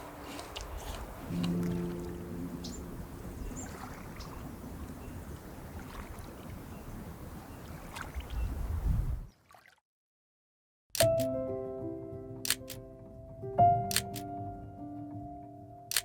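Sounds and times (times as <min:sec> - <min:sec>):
low wind rumble on microphone: 0:00.0 - 0:09.3
moving water: 0:00.0 - 0:09.8.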